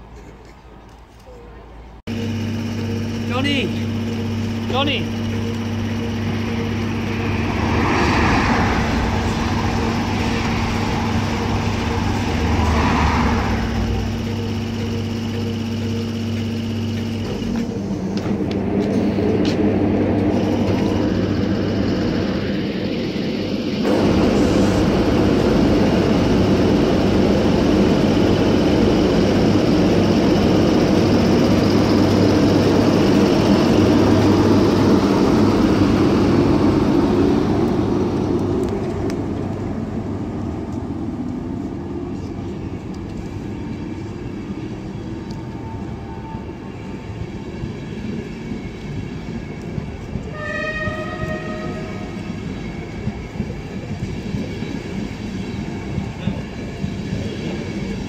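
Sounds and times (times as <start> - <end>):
train passing: 0.8 - 58.0
train horn blast: 50.2 - 52.4.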